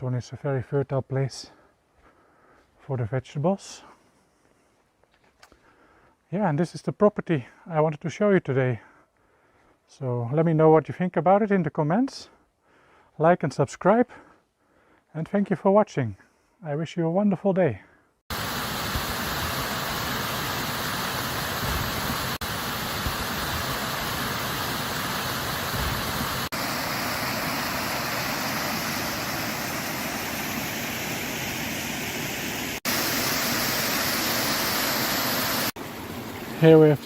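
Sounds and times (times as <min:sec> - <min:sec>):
stream rushing over a small fall: 0:18.3 - 0:37.0.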